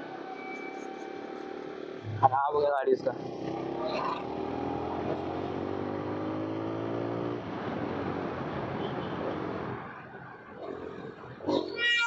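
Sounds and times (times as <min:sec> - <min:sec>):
wind and road rush: 0:00.0 - 0:12.0.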